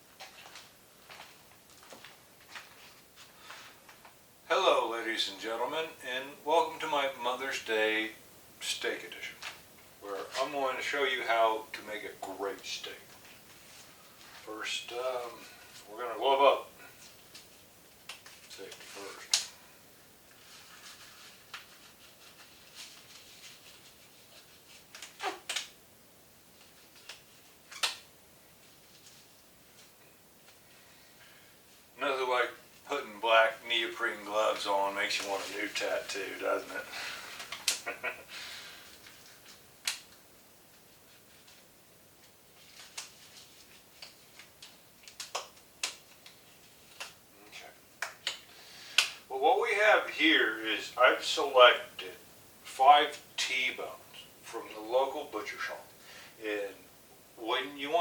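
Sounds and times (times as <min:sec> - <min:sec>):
rubber gloves snapping and rustling: 0:17.2 - 0:19.6, 0:21.4 - 0:25.8, 0:26.6 - 0:28.1, 0:37.2 - 0:38.1, 0:39.0 - 0:40.3, 0:42.2 - 0:47.2, 0:48.0 - 0:49.3
handling clicks and snaps: 0:44.0 - 0:47.2.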